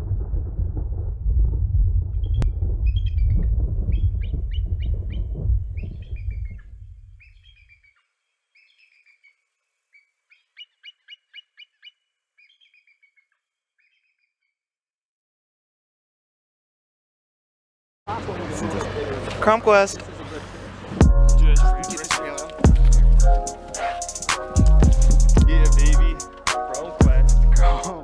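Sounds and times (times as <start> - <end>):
deep rumble: 0.0 - 7.4, 21.0 - 21.8, 22.7 - 23.4, 27.0 - 27.8
small bird chirping: 2.3 - 14.6.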